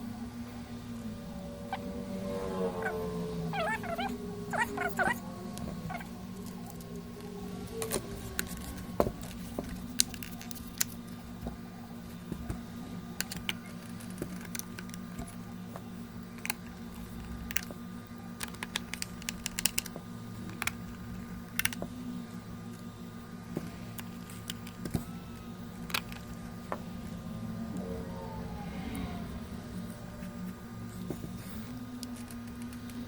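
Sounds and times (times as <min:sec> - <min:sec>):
steady low hum: 0:00.0 - 0:33.0
small parts clicking and tapping: 0:13.2 - 0:17.8, 0:18.4 - 0:22.0.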